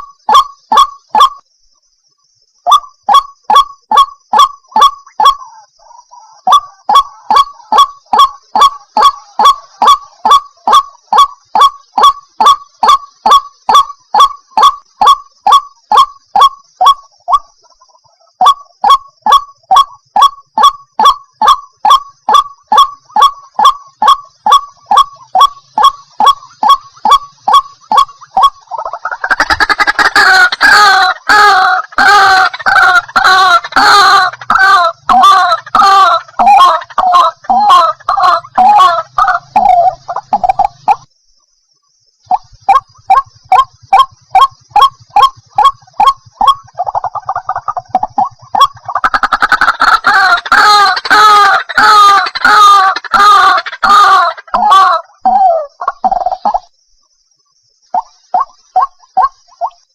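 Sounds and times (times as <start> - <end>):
bird honking calls: 18.4 - 41.0.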